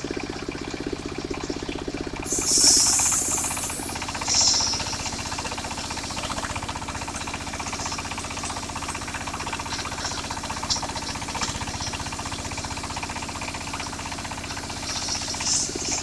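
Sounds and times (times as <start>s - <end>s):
sawmill engine running: 0.0s - 16.0s
saw blade hissing into wood: 2.2s - 6.0s.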